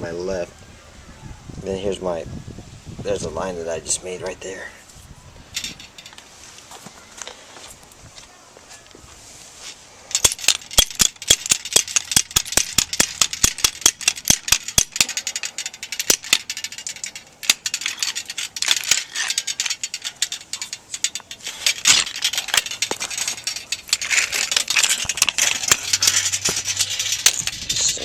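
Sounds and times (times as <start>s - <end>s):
tubing bender ratchet clicking: 10.1s - 28.0s.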